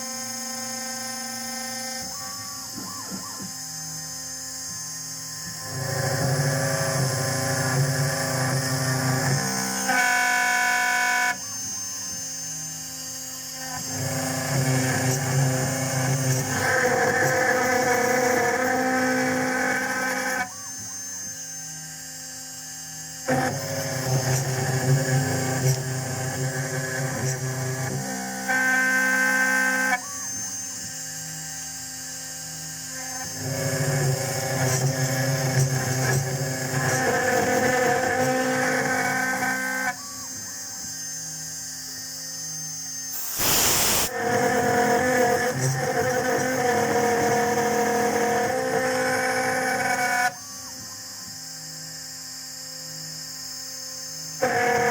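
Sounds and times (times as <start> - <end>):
milling machine whine: 0.0 - 51.3
loud burst of noise: 43.1 - 44.4
milling machine cutting metal: 43.1 - 50.2.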